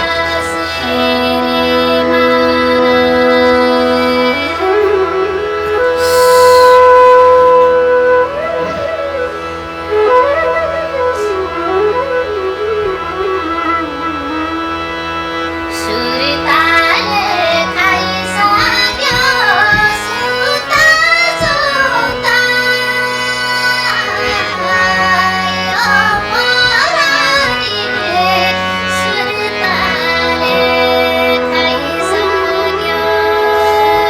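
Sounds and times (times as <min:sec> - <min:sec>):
woman singing: 0:00.0 - 0:07.5, 0:15.7 - 0:34.0
instrumental accompaniment: 0:00.0 - 0:34.0.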